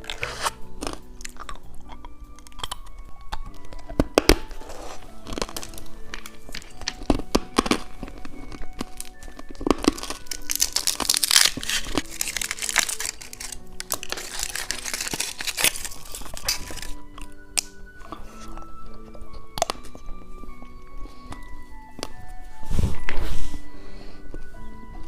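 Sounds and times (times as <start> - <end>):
plastic wrapper crinkling and tearing: 0.0 - 18.5
background music: 0.0 - 25.0.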